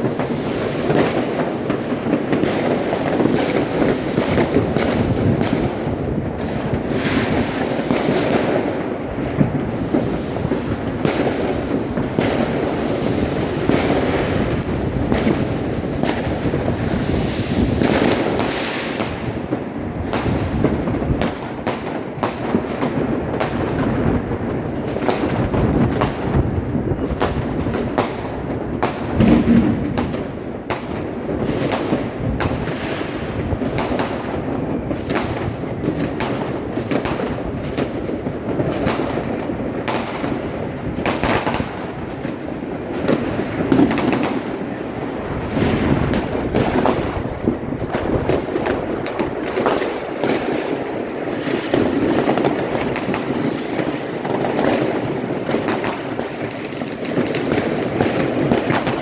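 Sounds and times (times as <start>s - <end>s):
fireworks bangs and crackles: 0.0s - 59.0s
steady rumble: 29.2s - 30.4s.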